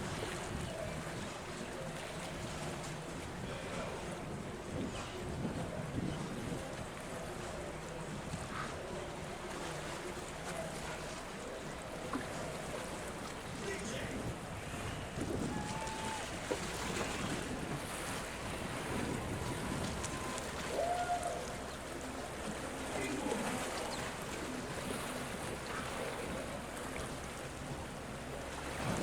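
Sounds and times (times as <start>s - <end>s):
wind buffeting microphone: 0.0s - 9.0s, 13.5s - 26.5s, 28.6s - 29.0s
water noise: 0.0s - 29.0s.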